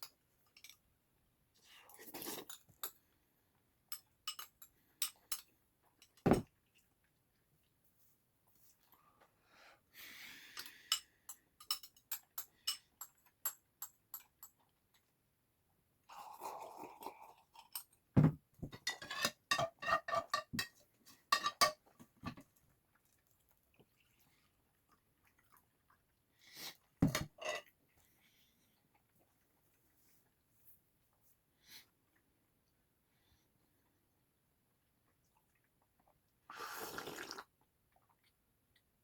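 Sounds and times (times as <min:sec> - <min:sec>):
utensils clinking against bowl: 0:03.9 - 0:06.4, 0:10.5 - 0:14.6, 0:18.7 - 0:22.4, 0:27.0 - 0:27.7
knock: 0:18.2 - 0:18.4
chewing: 0:22.6 - 0:26.9.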